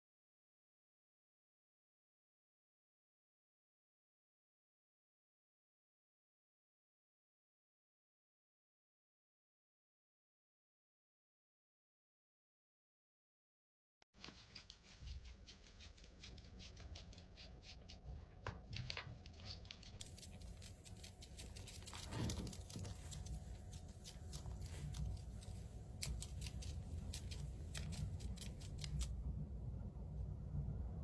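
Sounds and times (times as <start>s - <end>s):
faint clicking and crackling: 14.2s - 29.4s
low steady hum: 15.0s - 31.0s.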